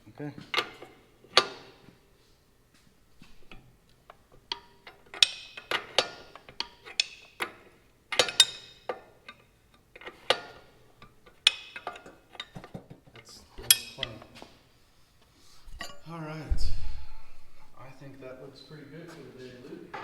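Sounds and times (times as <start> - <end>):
wrench clicking on a nut: 4.1 - 12.6.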